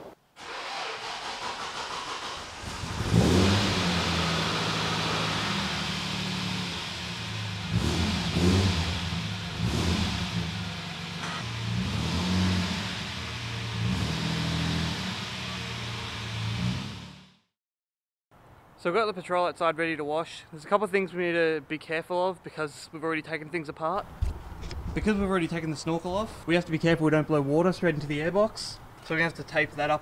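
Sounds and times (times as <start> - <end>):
car engine starting: 0.4 - 17.4
engine idling with throttle blips: 12.7 - 16.7.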